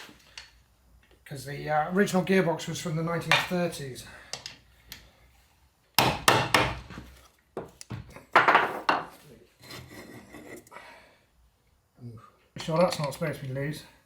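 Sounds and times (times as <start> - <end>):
tools clanking on metal: 12.6 - 13.3.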